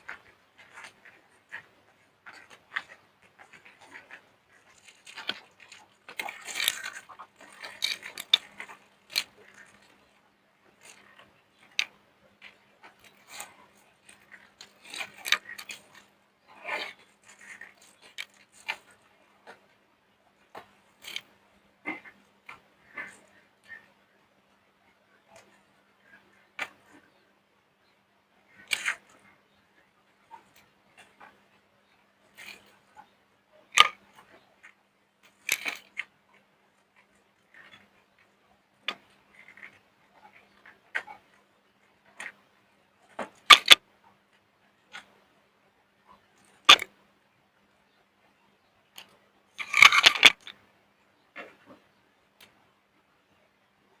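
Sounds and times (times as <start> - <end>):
soap crunching: 2.2 - 10.1.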